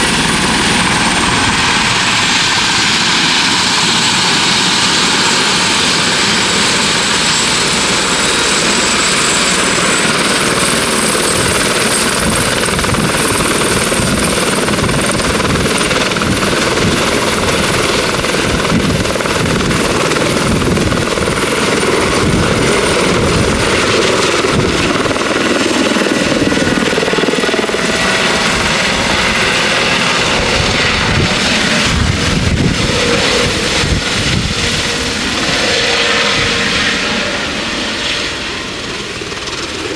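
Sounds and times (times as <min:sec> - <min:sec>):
helicopter rotor chop: 0:00.0 - 0:39.9
helicopter turbine whine: 0:00.0 - 0:39.9.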